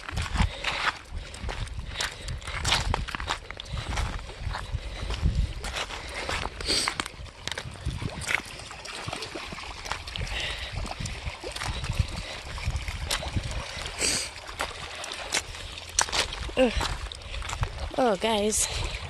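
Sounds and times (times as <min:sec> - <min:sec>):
crunching steps on a beach: 0:00.0 - 0:09.2, 0:14.0 - 0:19.0
water splashing and trickling: 0:00.0 - 0:19.0.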